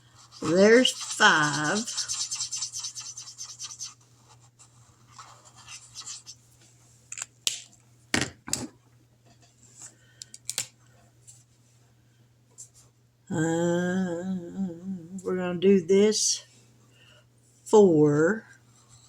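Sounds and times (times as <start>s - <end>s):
marker scribbling on paper: 0.2s - 6.4s.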